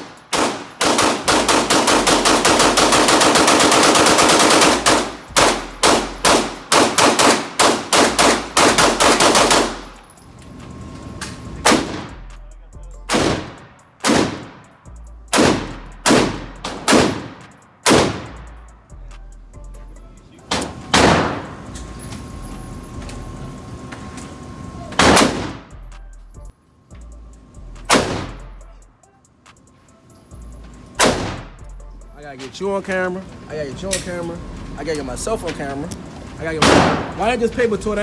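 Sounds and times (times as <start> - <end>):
gunshots: 0.0 - 10.0, 11.6 - 12.2, 13.1 - 14.7, 15.3 - 18.5, 20.5 - 21.7, 24.9 - 25.8, 27.9 - 28.5, 31.0 - 31.6, 36.4 - 38.0.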